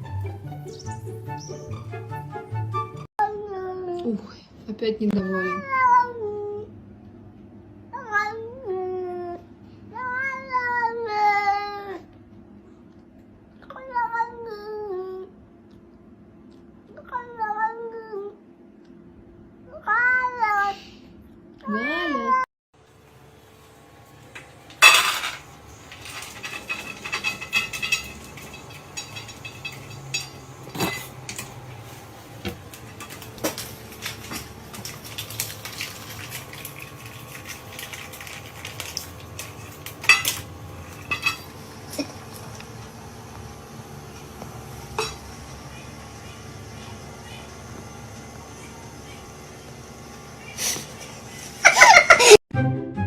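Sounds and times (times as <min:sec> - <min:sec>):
dishes and cutlery clattering: 0:24.8 - 0:31.9, 0:32.5 - 0:42.2.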